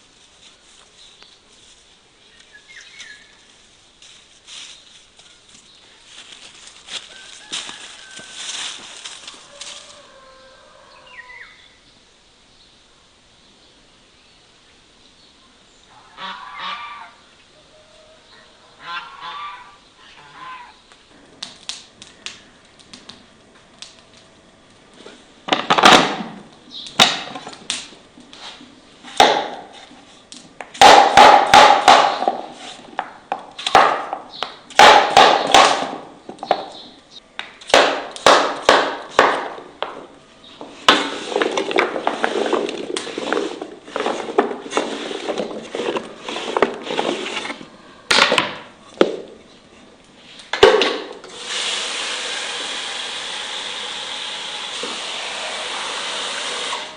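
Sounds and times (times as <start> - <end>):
geese honking: 15.9 - 17.2, 17.8 - 20.8.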